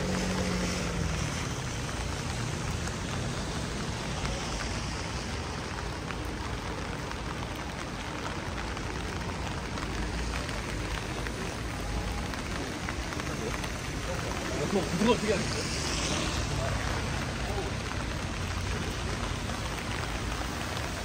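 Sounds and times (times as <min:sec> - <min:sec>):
rain falling on street: 0:00.0 - 0:21.0.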